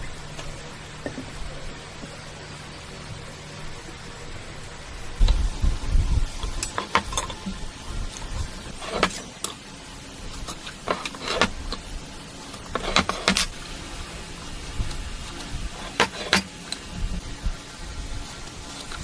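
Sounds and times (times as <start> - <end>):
scraping strokes on wood: 4.6 - 19.0.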